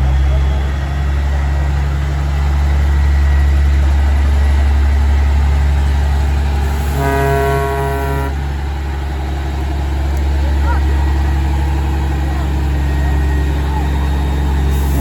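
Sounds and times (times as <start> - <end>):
diesel truck engines rumbling: 0.0 - 15.0
truck horn blast: 6.6 - 8.9, 14.6 - 15.0.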